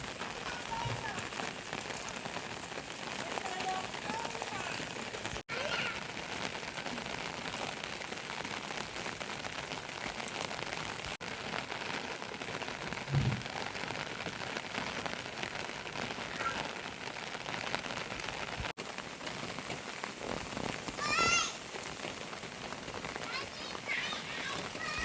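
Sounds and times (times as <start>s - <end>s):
steady rain falling: 0.0s - 25.0s
dull low thump: 13.0s - 13.6s.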